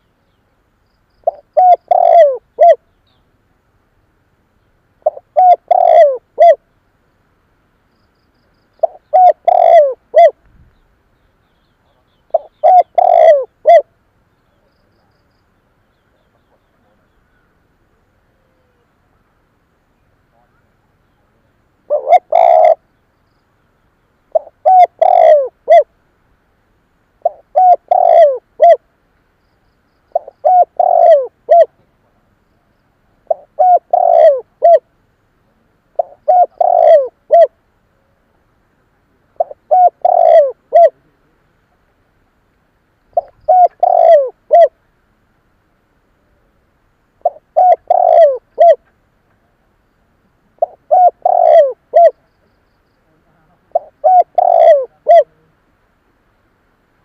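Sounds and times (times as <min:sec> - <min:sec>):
dove cooing: 0:01.2 - 0:02.9, 0:05.0 - 0:06.6, 0:08.8 - 0:10.4, 0:11.8 - 0:14.0, 0:18.2 - 0:19.0, 0:21.9 - 0:22.9, 0:24.3 - 0:25.9, 0:27.2 - 0:28.9, 0:30.1 - 0:31.9, 0:33.2 - 0:34.9, 0:35.9 - 0:38.2, 0:39.3 - 0:41.4, 0:43.1 - 0:44.8, 0:47.2 - 0:48.9, 0:50.5 - 0:52.3, 0:53.6 - 0:55.6.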